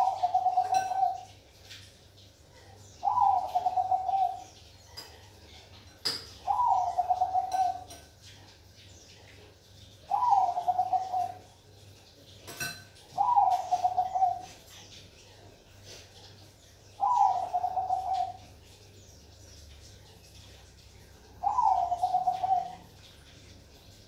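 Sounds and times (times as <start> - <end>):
dove cooing: 0.0 - 1.3, 3.0 - 4.6, 6.4 - 8.0, 10.1 - 11.5, 13.1 - 14.7, 17.0 - 18.8, 21.4 - 22.9.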